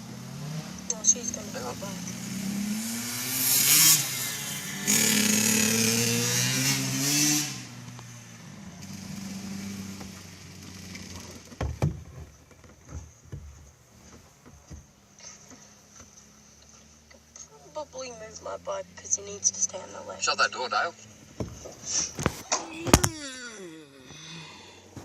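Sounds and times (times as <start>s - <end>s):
dirt bike engine revving: 0.0s - 11.5s.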